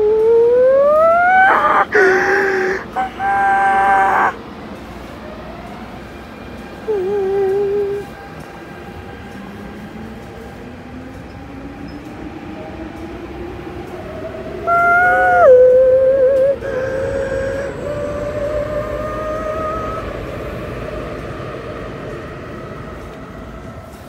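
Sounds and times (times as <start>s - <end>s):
train traction motor whine: 16.3s - 24.0s.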